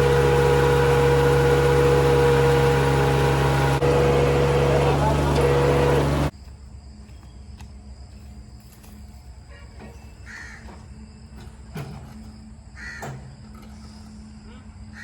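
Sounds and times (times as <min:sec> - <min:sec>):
loud tractor engine: 0:00.0 - 0:06.3
crows cawing: 0:10.3 - 0:10.7, 0:12.8 - 0:13.0.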